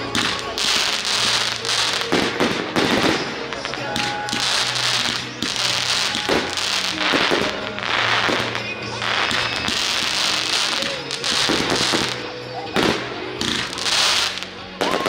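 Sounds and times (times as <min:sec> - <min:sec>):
fireworks bangs and crackling: 0:00.0 - 0:15.0
music: 0:00.0 - 0:15.0.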